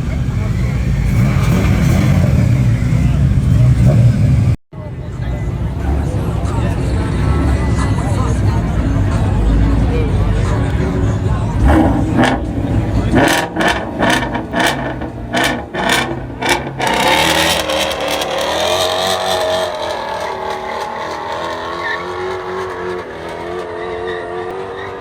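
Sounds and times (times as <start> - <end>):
car engine revving: 0.0 - 4.6, 5.7 - 25.0.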